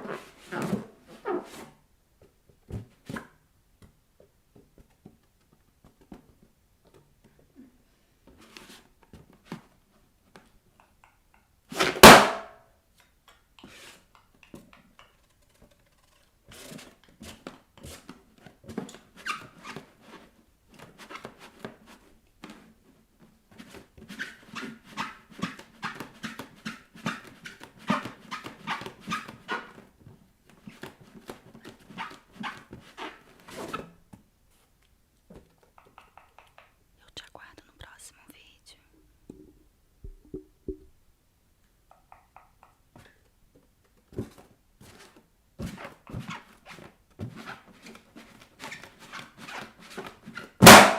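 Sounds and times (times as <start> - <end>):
bare feet squeaking on balloon: 0.0 - 1.7, 19.1 - 20.2, 24.0 - 29.9, 30.6 - 34.0, 45.6 - 50.9
balloon bursting pop: 11.8 - 12.6, 50.6 - 50.9.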